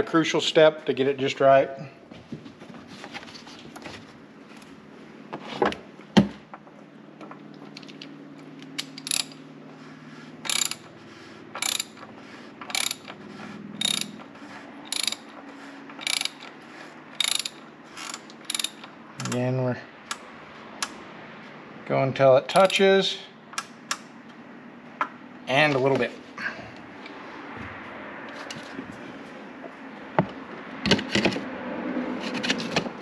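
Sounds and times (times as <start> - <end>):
ratchet wrench clicking: 8.7 - 9.4, 10.4 - 10.9, 11.6 - 13.2, 13.8 - 15.3, 16.0 - 19.4, 22.5 - 22.8.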